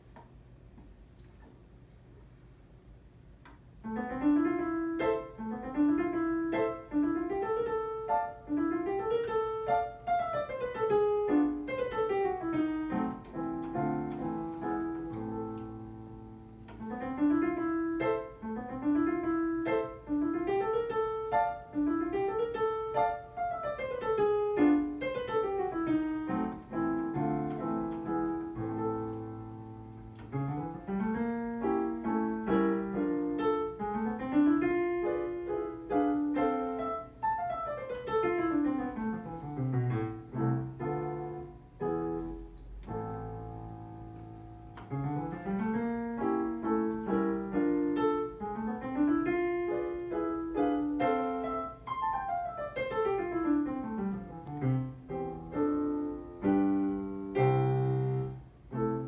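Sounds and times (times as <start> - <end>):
fast solo piano piece: 3.8 - 59.0.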